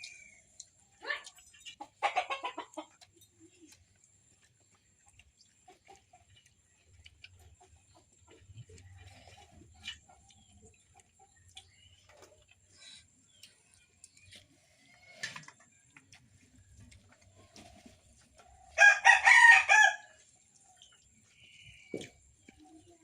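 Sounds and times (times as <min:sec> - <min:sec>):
rooster crowing: 0:18.8 - 0:20.2.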